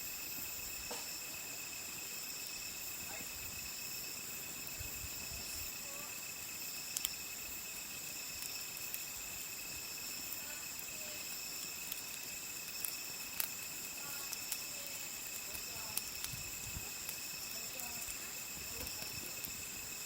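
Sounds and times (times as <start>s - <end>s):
campfire wood crackling: 0.0s - 20.0s
insects chirping: 0.0s - 20.0s.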